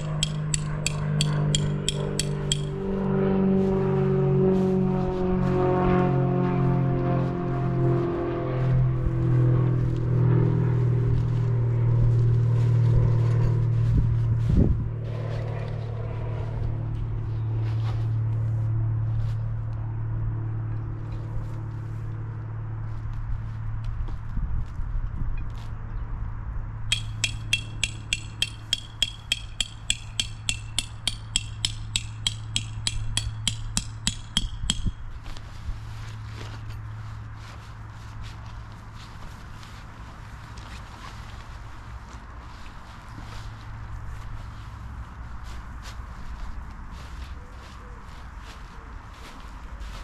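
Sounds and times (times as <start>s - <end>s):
hammer striking metal: 0.0s - 3.0s, 26.9s - 35.1s.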